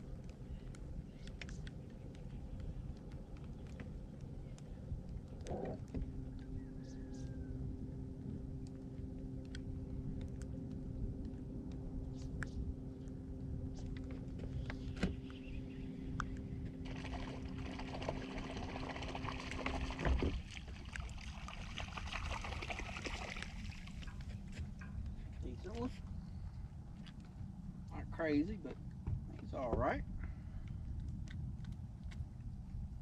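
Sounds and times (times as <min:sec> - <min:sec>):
steady hum: 0:00.0 - 0:33.0
wind rumble on microphone: 0:00.0 - 0:33.0
water splashing and trickling: 0:16.8 - 0:25.0.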